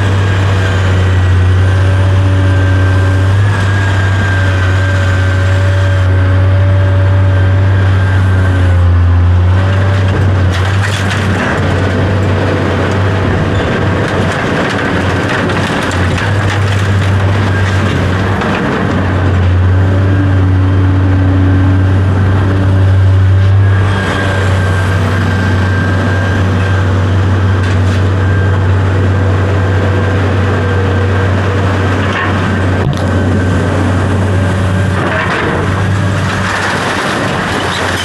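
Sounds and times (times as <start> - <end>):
large engine droning: 0.0 - 38.0.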